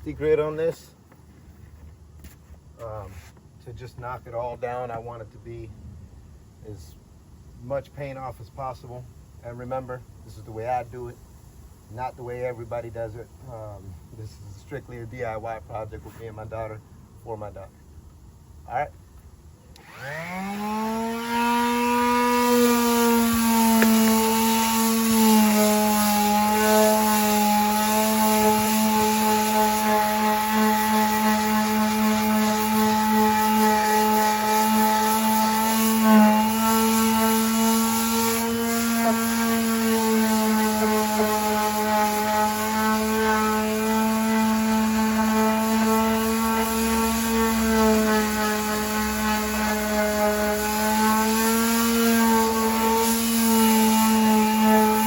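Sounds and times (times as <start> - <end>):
power sander humming: 19.1 - 55.0.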